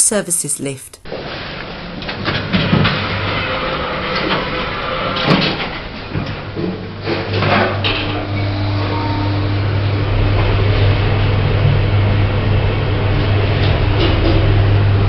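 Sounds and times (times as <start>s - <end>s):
deeper hum: 1.0s - 15.0s
lift low hum: 5.7s - 15.0s
brief higher tone: 7.9s - 10.0s.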